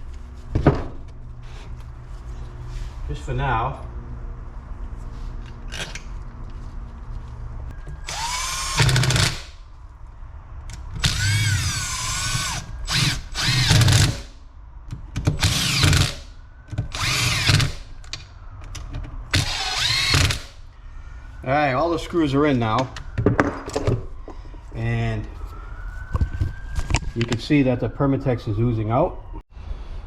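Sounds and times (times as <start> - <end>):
power drill whining: 8.0 - 9.5, 11.0 - 14.3, 15.4 - 16.2, 16.9 - 17.8, 19.3 - 20.6.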